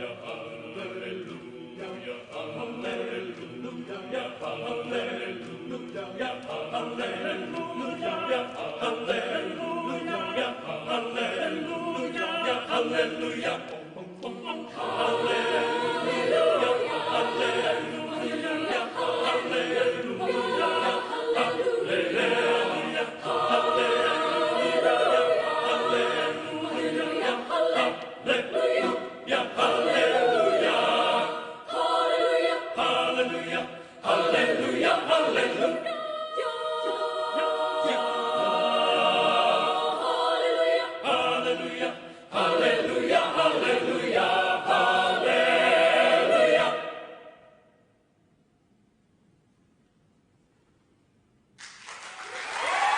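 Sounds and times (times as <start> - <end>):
choir singing unaccompanied: 0.0 - 47.6.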